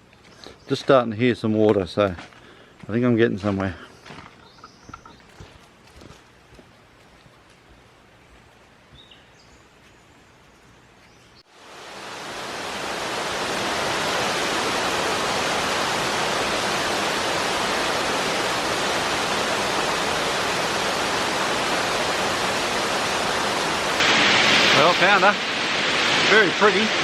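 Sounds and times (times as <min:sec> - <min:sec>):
faint high bird chirps: 0:04.4 - 0:05.5
waterfall rushing: 0:11.5 - 0:27.0.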